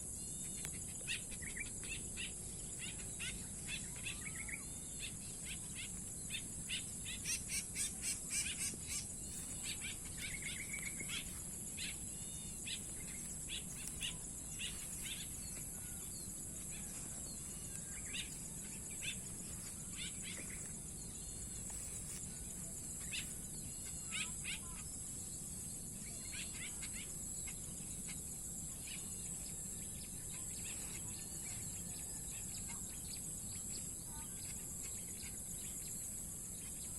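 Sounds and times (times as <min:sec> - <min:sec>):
high-pitched insect buzz: 0:00.2 - 0:29.3
swallows chirping: 0:00.6 - 0:24.9.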